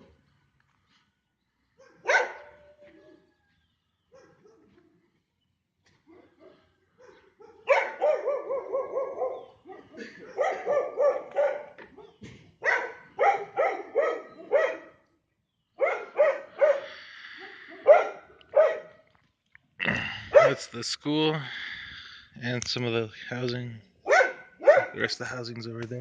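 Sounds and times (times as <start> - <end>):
dog barking: 1.8 - 3.4, 4.1 - 4.9, 6.0 - 15.0, 15.8 - 19.0, 20.3 - 20.6, 24.0 - 25.0.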